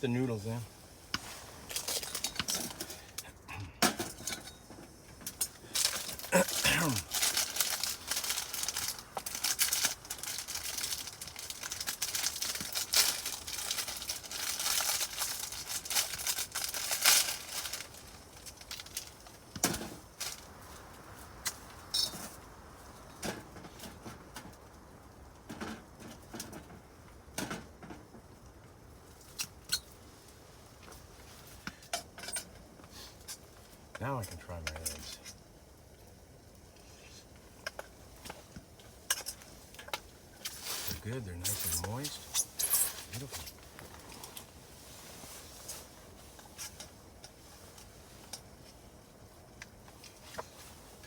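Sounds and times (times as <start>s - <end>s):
packet crinkling: 5.7s - 19.2s.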